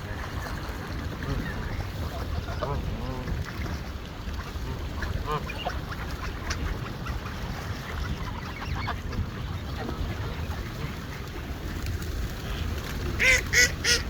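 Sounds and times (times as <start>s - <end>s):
ducks quacking: 0.0s - 11.6s, 12.4s - 14.0s
geese honking: 13.2s - 14.0s.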